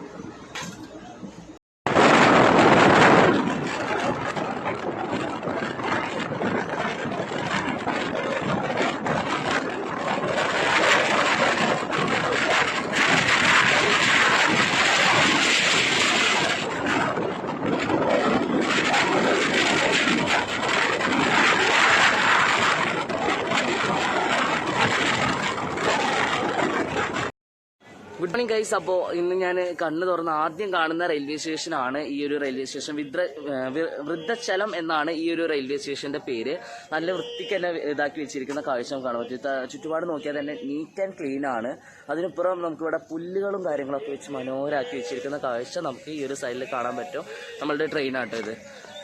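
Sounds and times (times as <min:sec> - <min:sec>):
train wheels rumbling on rails: 0:01.9 - 0:27.3.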